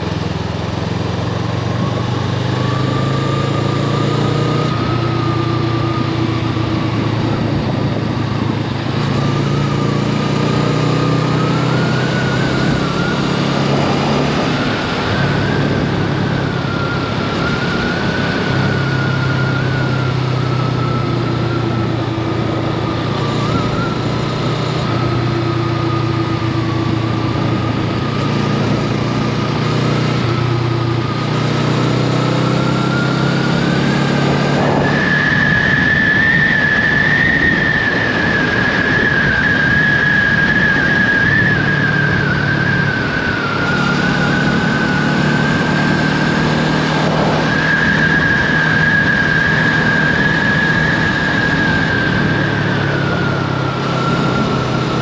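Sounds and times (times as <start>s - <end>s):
motorcycle engine running: 0.0s - 39.4s.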